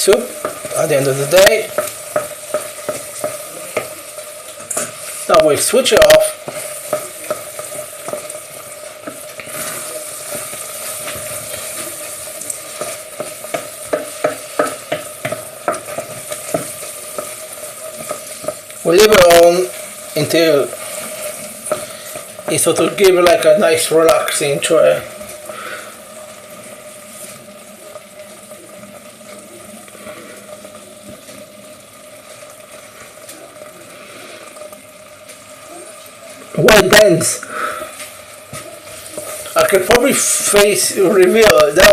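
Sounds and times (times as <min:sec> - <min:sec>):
rice sizzling in a pan: 0:00.0 - 0:41.9
spoon scraping a pan: 0:00.1 - 0:20.0, 0:20.6 - 0:23.0.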